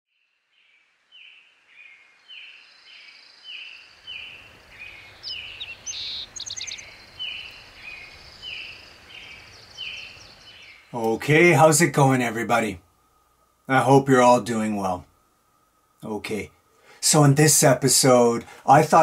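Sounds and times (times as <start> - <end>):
bird repeating falling call: 1.8 - 11.6.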